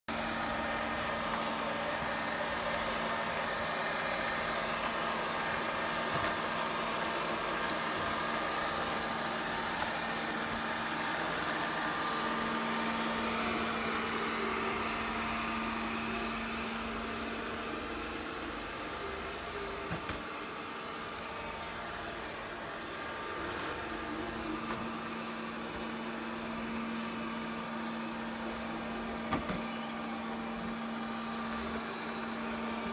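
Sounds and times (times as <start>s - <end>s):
robot vacuum motor whir: 22.9s - 32.9s.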